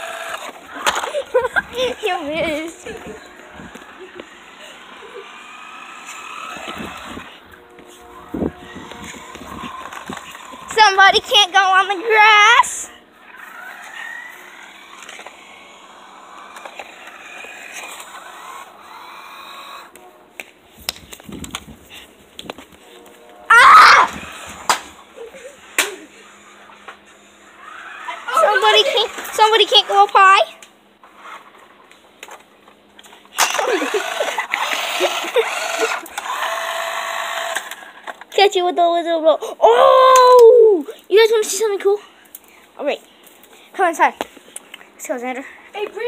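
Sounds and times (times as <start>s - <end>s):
toy car electric motor whining: 0.0s - 20.0s, 23.5s - 31.8s, 33.0s - 38.3s
steady rushing noise: 0.6s - 18.9s.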